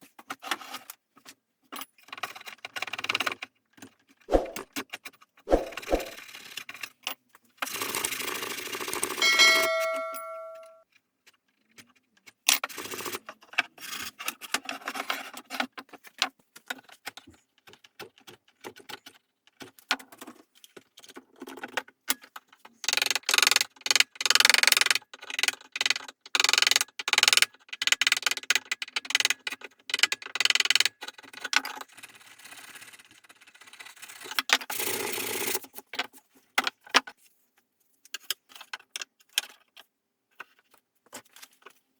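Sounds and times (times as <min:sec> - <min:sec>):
repeated rubbing strokes: 0:04.3 - 0:04.6, 0:05.5 - 0:06.2
metal piece ringing: 0:09.2 - 0:10.8.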